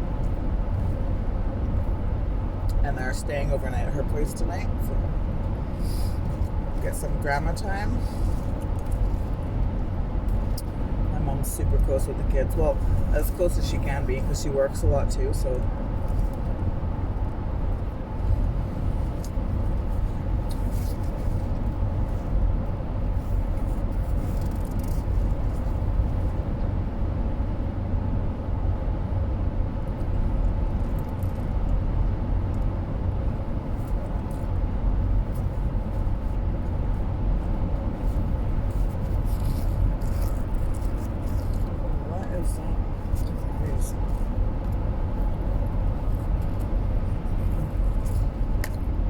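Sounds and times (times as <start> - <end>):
car road and engine rumble: 0.0 - 49.0
faint steady hum: 0.0 - 49.0.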